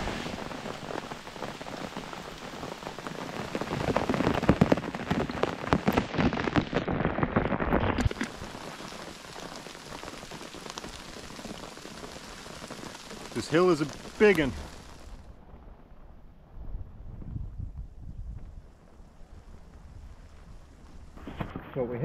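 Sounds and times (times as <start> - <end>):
heavy rain falling: 0.0 - 16.2
close raindrops striking: 0.0 - 22.0.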